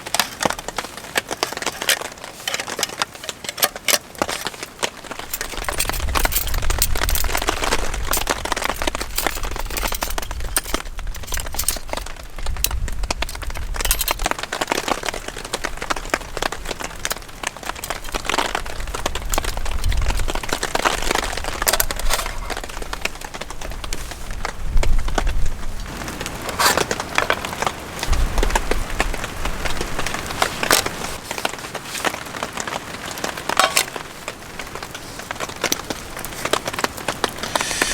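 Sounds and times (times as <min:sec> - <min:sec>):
wind buffeting microphone: 0:05.1 - 0:14.5, 0:15.1 - 0:31.2
steady hiss: 0:37.2 - 0:37.9.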